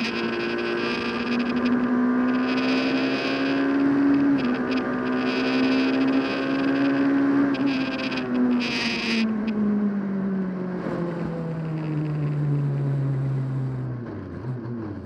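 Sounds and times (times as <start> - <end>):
rally car engine under load: 0.0 - 15.0.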